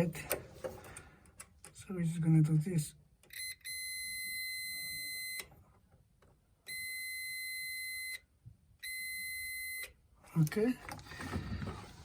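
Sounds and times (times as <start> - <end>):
multimeter continuity beep: 3.3 - 5.5, 6.7 - 10.0.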